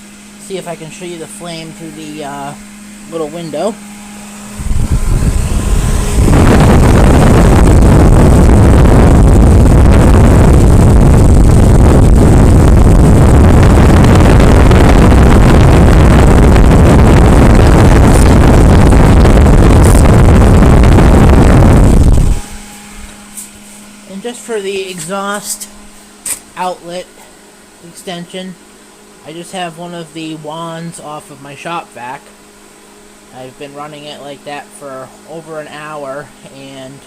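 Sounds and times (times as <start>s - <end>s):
furnace blower and burner rushing: 0.0s - 36.7s.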